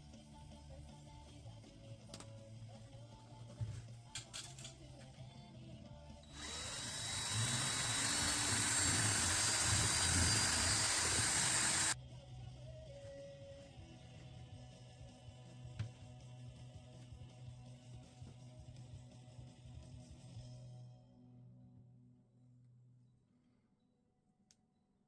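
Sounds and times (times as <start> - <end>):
power tool hissing: 6.3 - 12.0.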